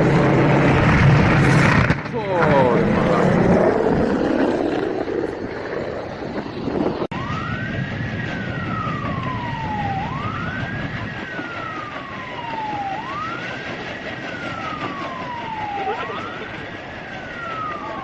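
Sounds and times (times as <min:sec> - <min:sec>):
loud rushing noise: 0:00.0 - 0:11.0
emergency vehicle siren wailing: 0:00.0 - 0:18.0
steady rushing background: 0:00.0 - 0:18.0.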